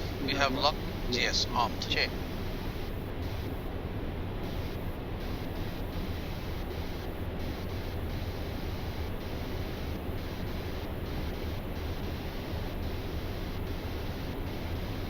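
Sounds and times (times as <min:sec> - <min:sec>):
airflow and air-conditioning hiss: 0:00.0 - 0:15.0.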